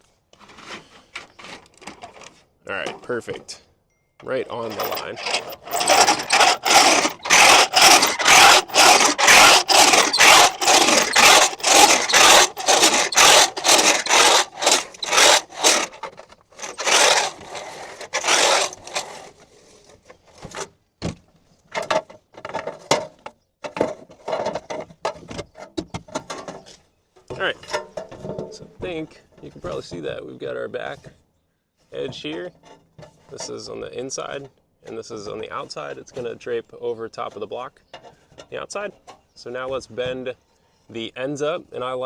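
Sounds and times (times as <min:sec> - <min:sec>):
tool scraping aluminum sheet: 0:04.5 - 0:20.6.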